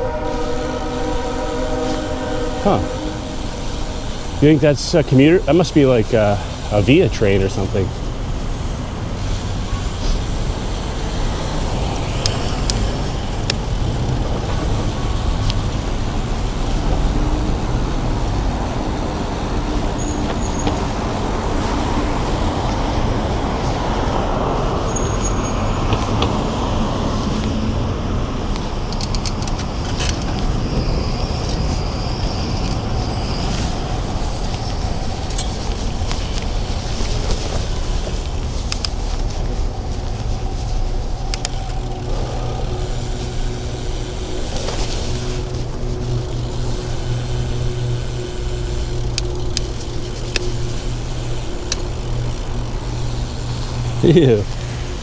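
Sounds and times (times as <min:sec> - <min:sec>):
motor traffic passing: 0:00.0 - 0:55.0
road noise: 0:00.0 - 0:55.0.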